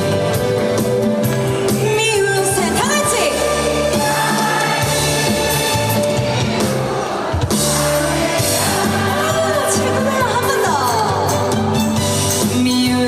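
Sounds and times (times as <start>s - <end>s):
trot song instrumental accompaniment: 0.0s - 13.0s
woman singing: 12.5s - 13.0s.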